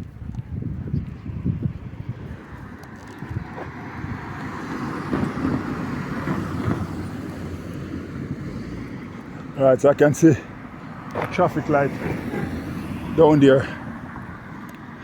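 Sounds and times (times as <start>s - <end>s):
car passing: 1.2s - 15.0s.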